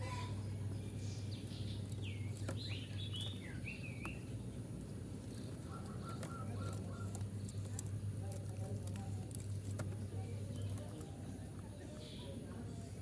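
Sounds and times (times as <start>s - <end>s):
birds chirping: 0.0s - 4.7s, 5.4s - 7.9s.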